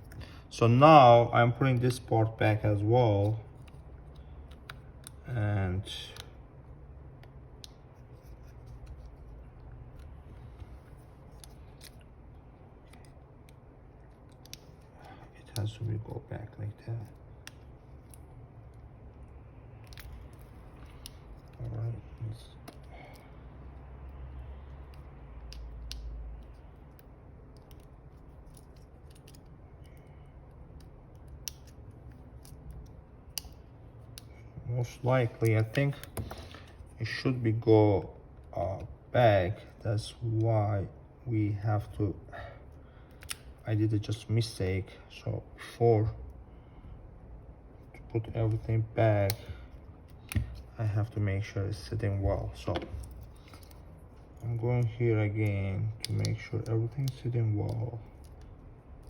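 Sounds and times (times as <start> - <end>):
low steady hum: 0.0 - 59.0
small clicks of phone parts: 3.2 - 5.2, 12.8 - 15.9, 17.0 - 23.4, 24.6 - 34.4, 43.0 - 43.6, 49.2 - 50.7, 52.7 - 59.0
clicks and taps of phone parts: 3.6 - 5.2, 35.4 - 36.8, 49.2 - 50.7, 52.2 - 53.9, 55.4 - 58.5.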